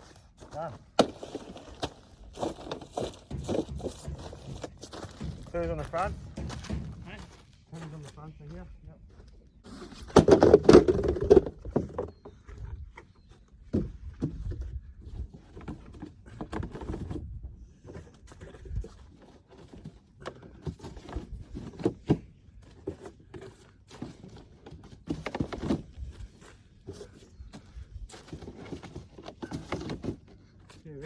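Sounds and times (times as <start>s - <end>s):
building materials knocking: 2.8s - 7.5s.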